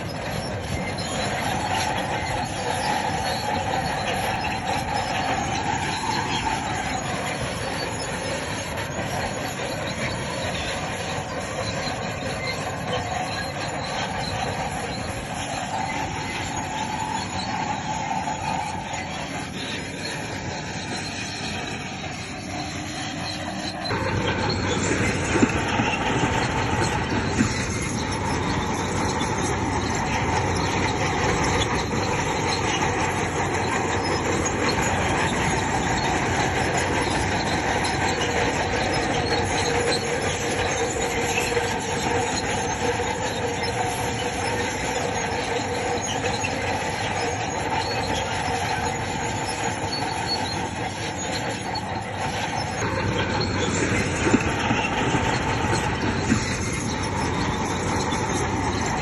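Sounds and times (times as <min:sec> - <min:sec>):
bulldozer engine running: 0:00.0 - 0:59.0
steel tracks squealing and clanking: 0:00.0 - 0:59.0.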